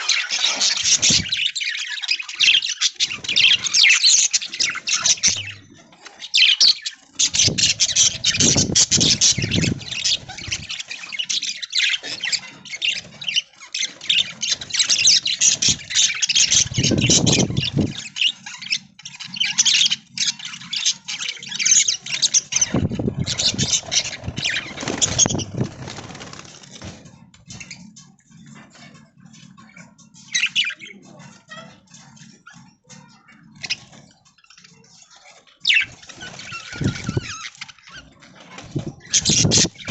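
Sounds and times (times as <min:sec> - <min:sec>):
wings flapping: 0:00.0 - 0:01.5, 0:07.0 - 0:11.2, 0:22.3 - 0:27.8, 0:35.7 - 0:39.9
budgerigars chattering and squawking: 0:00.0 - 0:39.9.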